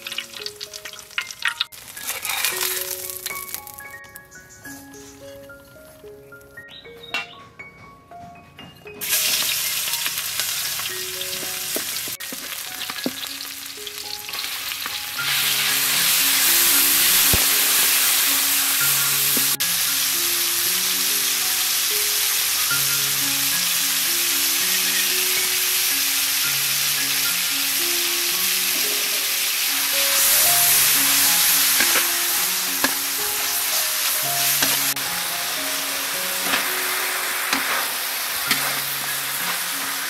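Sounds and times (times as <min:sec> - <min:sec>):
meat sizzling in a wok: 0:00.0 - 0:04.0, 0:09.0 - 0:40.0
soft background music: 0:00.0 - 0:40.0
metal spatula scraping and clicking: 0:01.2 - 0:02.9, 0:34.6 - 0:34.9, 0:38.5 - 0:39.6.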